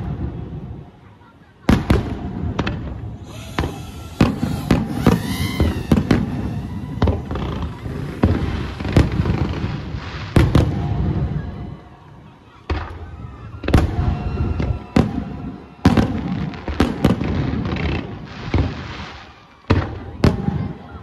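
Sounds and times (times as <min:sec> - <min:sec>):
fireworks crackle and rumble: 0:00.0 - 0:21.0
firework shells bursting: 0:03.2 - 0:10.6.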